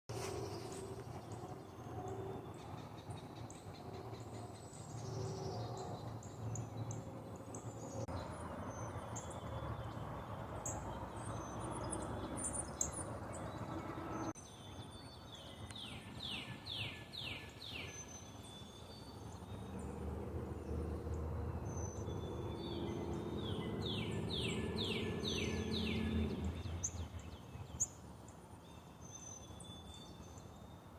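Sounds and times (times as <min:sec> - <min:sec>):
birds chirping and calling: 0:00.6 - 0:28.0.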